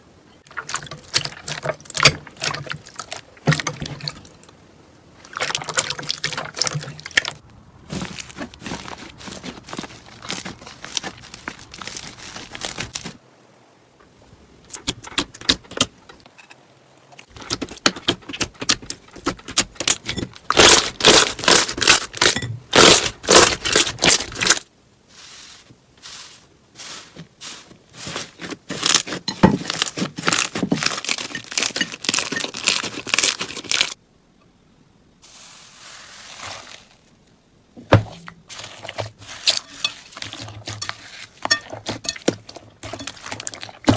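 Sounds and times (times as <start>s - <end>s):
slime crackling and popping: 20.5s - 24.6s.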